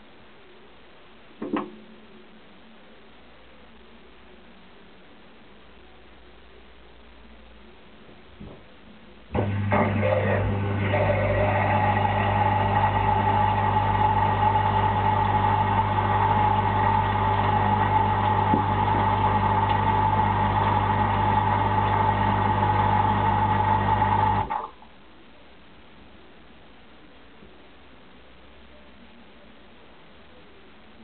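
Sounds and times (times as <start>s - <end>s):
dishwasher pump humming and whining: 9.3s - 24.7s.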